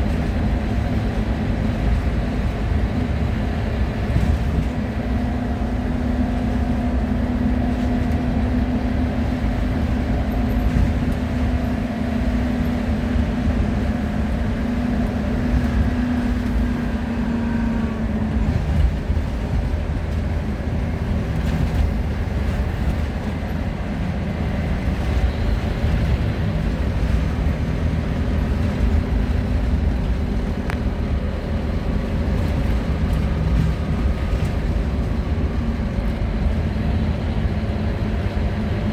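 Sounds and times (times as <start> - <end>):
bus engine and road noise: 0.0 - 38.9
steady engine drone: 0.0 - 38.9.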